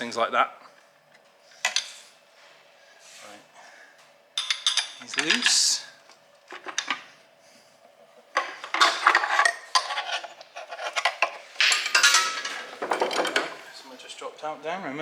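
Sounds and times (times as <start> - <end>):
metal tools clinking and clattering: 4.4 - 5.8, 8.4 - 13.6.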